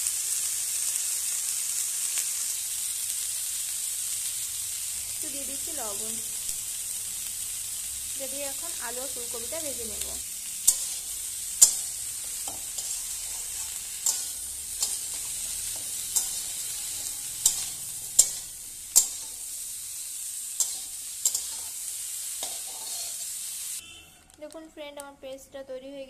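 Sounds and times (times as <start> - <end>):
vegetables sizzling in oil: 0.0 - 24.6
metal spatula clinking on wok: 10.7 - 19.4, 20.6 - 21.8.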